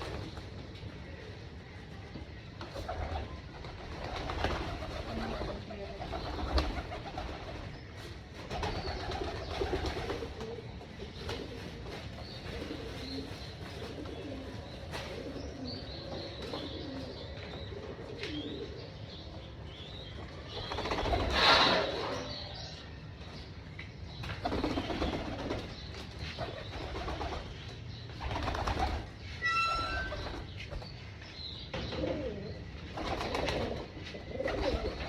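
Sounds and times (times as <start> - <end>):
pigeons cooing: 2.7 - 19.2, 20.5 - 22.6, 31.7 - 35.0.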